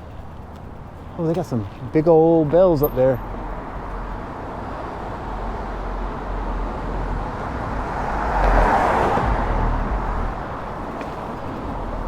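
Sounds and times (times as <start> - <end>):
low traffic rumble: 0.0 - 12.0
car passing: 3.0 - 12.0.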